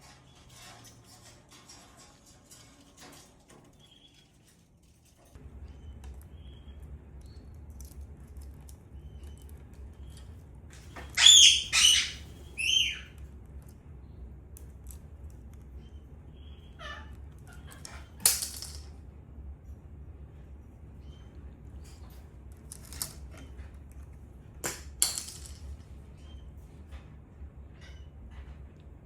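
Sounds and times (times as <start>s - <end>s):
parakeet chatter: 11.0s - 13.2s
parakeet shrill calls: 11.0s - 13.2s.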